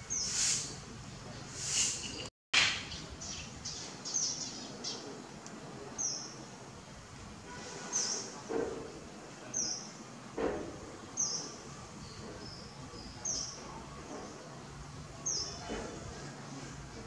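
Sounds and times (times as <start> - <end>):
bird high chirp: 0.0 - 0.8, 1.6 - 5.0
outdoor background hiss: 0.0 - 17.0.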